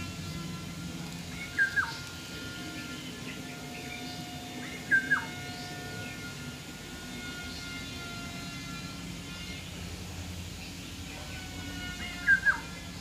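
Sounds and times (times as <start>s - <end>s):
bird call with dropping pitch: 0.0s - 2.1s, 2.8s - 6.4s, 12.0s - 12.8s
steady background hum: 0.0s - 13.0s.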